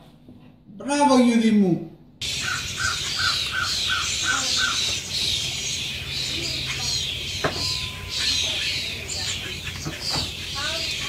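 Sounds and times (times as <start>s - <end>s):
higher falling bird calls: 2.2s - 11.0s.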